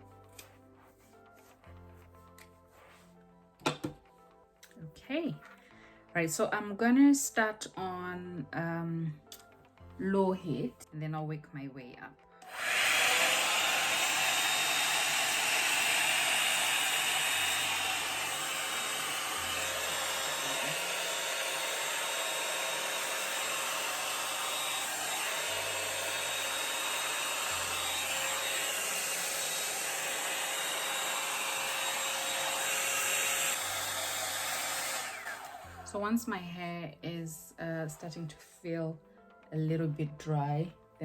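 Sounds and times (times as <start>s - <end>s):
hot-air brush fan blowing: 12.4s - 35.9s.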